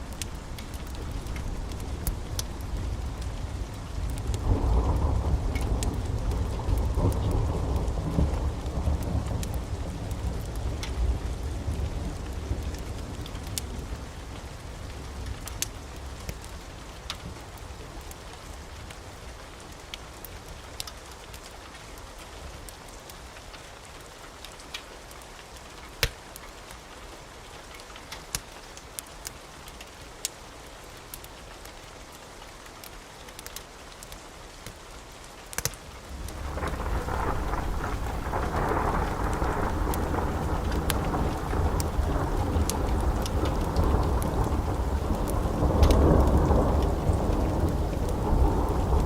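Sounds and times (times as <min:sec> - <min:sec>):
steady rain: 0:00.0 - 0:49.0
rolling thunder: 0:00.1 - 0:13.2, 0:36.1 - 0:49.0.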